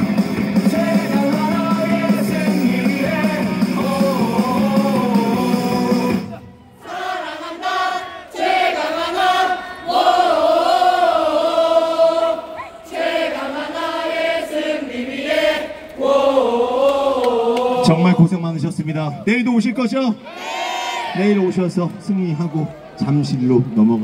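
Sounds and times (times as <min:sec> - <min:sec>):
loudspeaker music with heavy bass: 0:00.0 - 0:06.6
stadium crowd singing: 0:00.0 - 0:18.8, 0:20.2 - 0:21.2.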